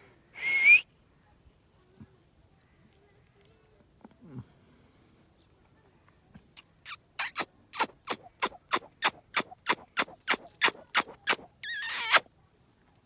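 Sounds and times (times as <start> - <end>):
parrot squeaky clicks: 6.9 - 12.2
parrot warbling whistle: 7.2 - 12.2.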